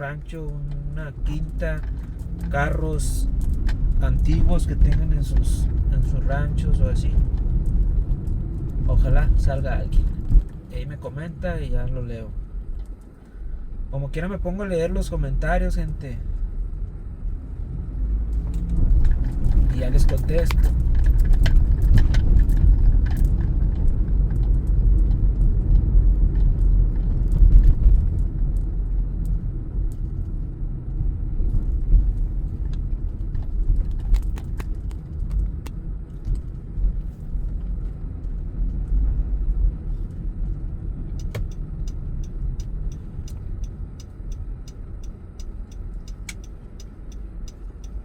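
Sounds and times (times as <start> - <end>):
engine and tyre rumble: 0.0 - 48.0
clicks: 41.2 - 48.0.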